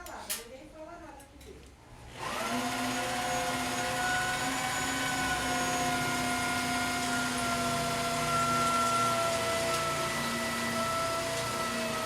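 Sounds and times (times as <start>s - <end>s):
electric motor whining: 2.2s - 12.0s.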